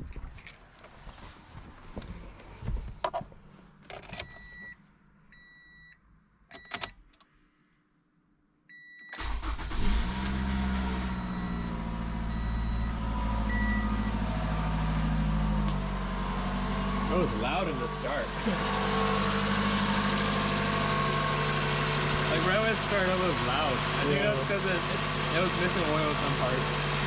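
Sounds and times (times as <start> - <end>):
car engine starting and idling: 9.1 - 27.0
electronic dashboard chimes: 11.0 - 14.2.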